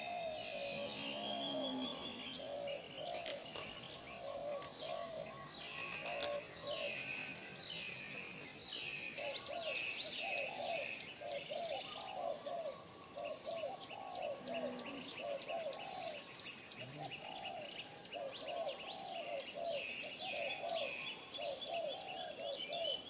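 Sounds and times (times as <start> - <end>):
lower arched bird notes: 0.0 - 8.5.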